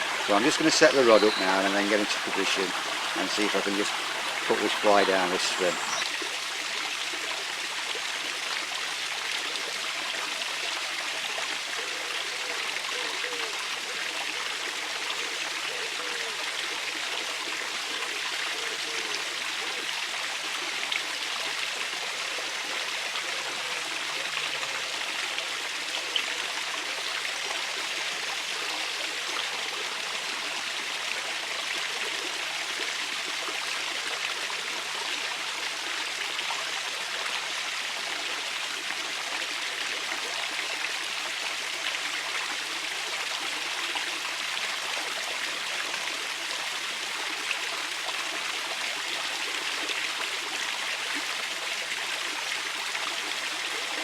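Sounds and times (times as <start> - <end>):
river rushing over stones: 0.0 - 8.2.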